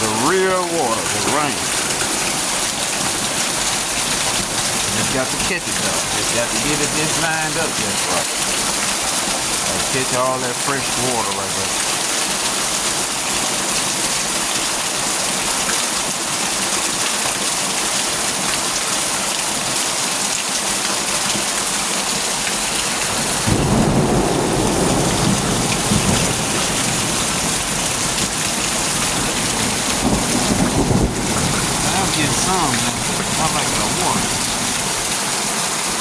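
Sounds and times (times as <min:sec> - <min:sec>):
heavy rain falling: 0:00.0 - 0:36.0
thunder rumbling: 0:23.4 - 0:35.0.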